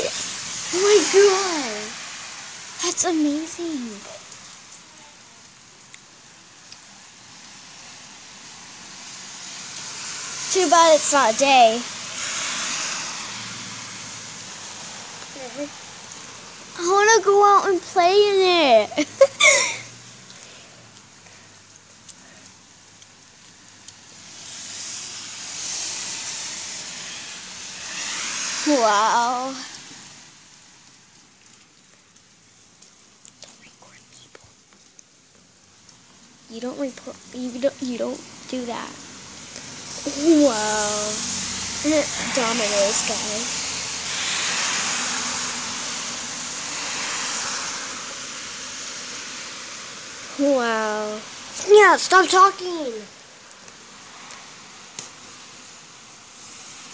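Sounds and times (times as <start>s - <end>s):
heavy rain pouring: 0.0s - 56.9s
raindrop ticks: 3.8s - 8.5s, 20.2s - 24.1s, 30.7s - 38.9s, 53.4s - 55.3s.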